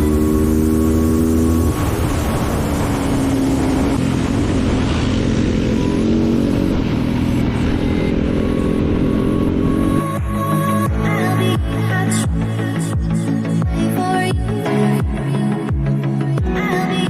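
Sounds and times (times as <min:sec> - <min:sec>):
off-road engine running: 0:00.0 - 0:10.8.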